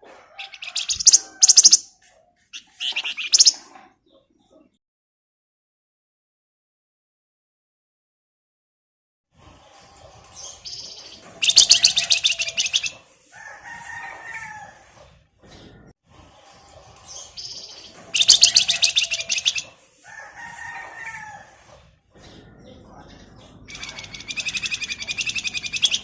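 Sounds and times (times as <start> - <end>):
bird singing rattling chatter: 0.4 - 4.6, 10.2 - 13.2, 17.0 - 20.0, 22.2 - 26.0.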